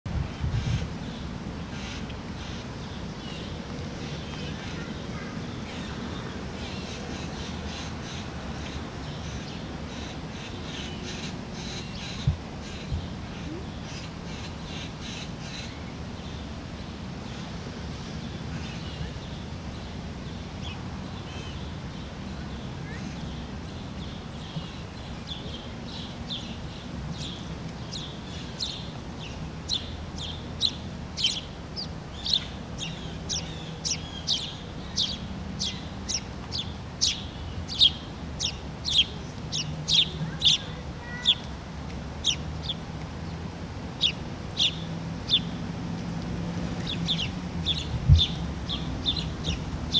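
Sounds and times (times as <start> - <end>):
low background rumble: 15.8 - 49.9
bird chirping: 20.6 - 41.4, 44.0 - 46.2, 46.8 - 49.9.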